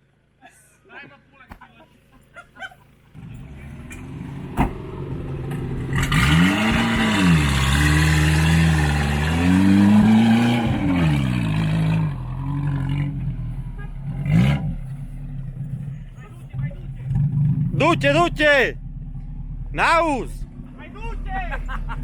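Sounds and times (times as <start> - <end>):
car engine revving: 3.2 - 15.9.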